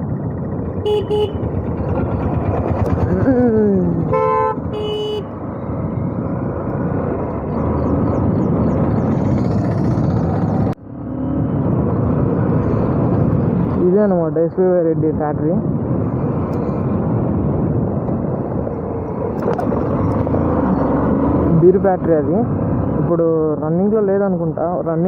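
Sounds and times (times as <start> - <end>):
motorcycle road and wind noise: 0.0 - 25.0
traffic horns honking: 0.8 - 1.6, 4.0 - 5.4.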